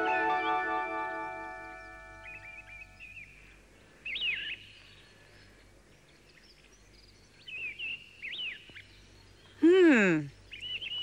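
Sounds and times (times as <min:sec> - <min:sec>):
faint background hiss: 0:00.0 - 0:11.0
birds whistling calls: 0:01.7 - 0:05.6, 0:10.4 - 0:11.0.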